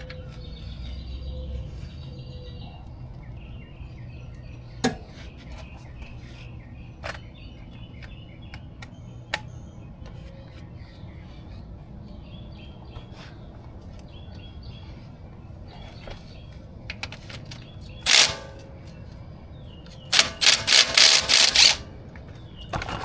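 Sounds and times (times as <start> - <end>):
birds chirping: 0.0 - 23.0
hand tools clinking on metal: 18.0 - 18.6, 20.1 - 21.9.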